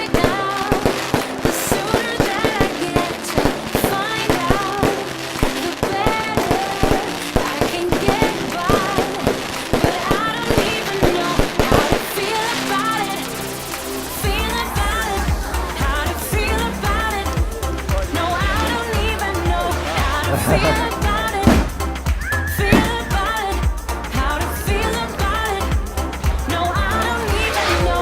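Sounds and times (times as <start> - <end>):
music from sound system: 0.0 - 28.0
fireworks bangs and crackles: 0.1 - 16.0, 19.8 - 23.4.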